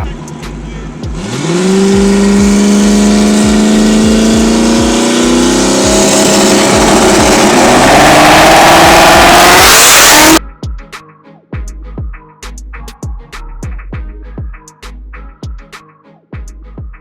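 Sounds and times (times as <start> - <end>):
car engine accelerating hard: 0.0 - 10.4.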